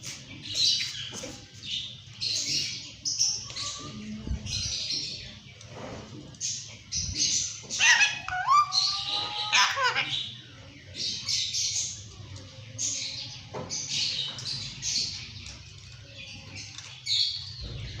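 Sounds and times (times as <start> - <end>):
parrot chirps and squawks: 7.7 - 10.4.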